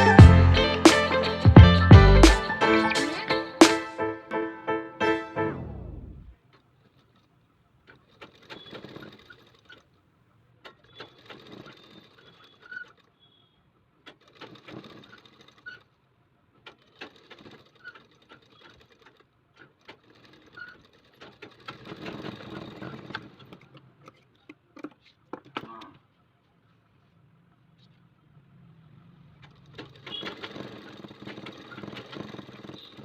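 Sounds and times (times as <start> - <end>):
sewing machine stitching: 10.8 - 12.8, 14.1 - 16.0, 16.6 - 23.8, 29.4 - 33.0.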